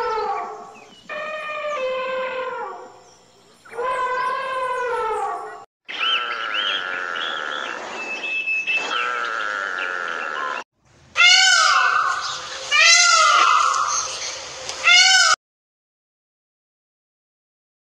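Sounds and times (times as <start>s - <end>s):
animal calling high: 0.0s - 3.0s, 3.6s - 8.1s, 11.2s - 15.4s
peacock calling: 0.0s - 15.4s.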